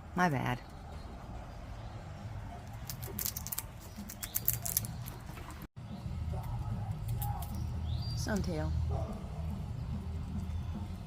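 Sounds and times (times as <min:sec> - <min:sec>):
squirrel gnawing peanut shell: 0:02.6 - 0:05.6, 0:06.4 - 0:08.5.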